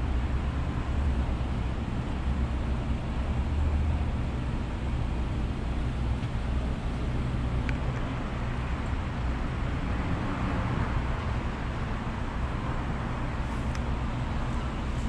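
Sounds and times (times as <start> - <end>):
car engine idling: 11.0 - 15.0.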